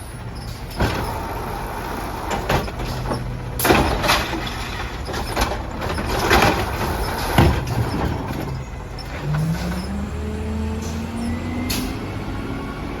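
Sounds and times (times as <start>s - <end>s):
garbage truck engine rising in pitch: 0.0s - 13.0s
metal clanks: 0.4s - 9.9s.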